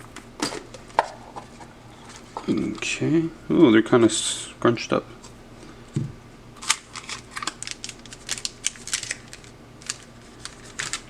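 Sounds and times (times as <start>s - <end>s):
packs clicking and crinkling: 6.6s - 11.0s.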